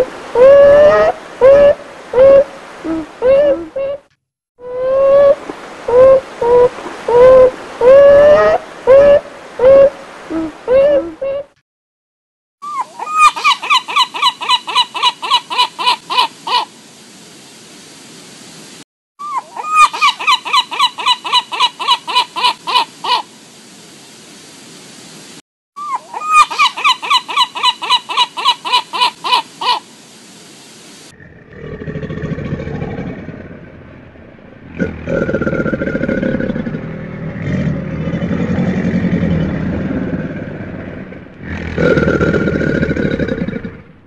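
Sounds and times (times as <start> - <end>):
gulls laughing long call: 0.0 - 11.6, 12.6 - 16.6, 19.2 - 23.2, 25.8 - 29.8
low rough rumbling: 31.2 - 44.0.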